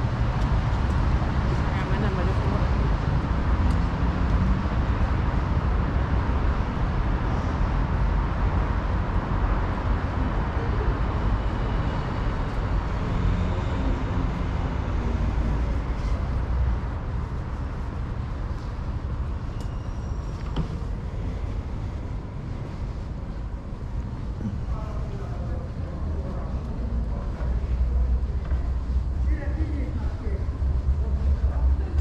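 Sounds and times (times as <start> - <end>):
rumble of passing vehicles: 0.0 - 32.0.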